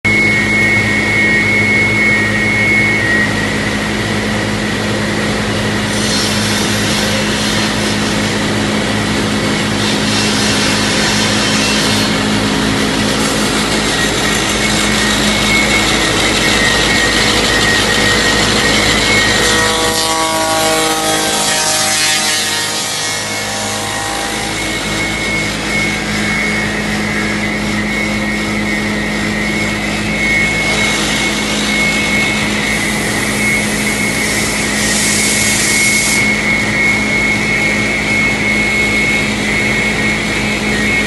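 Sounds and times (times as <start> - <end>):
milling machine hum and whine: 0.0 - 41.0
cutters hissing through timber: 29.9 - 36.5.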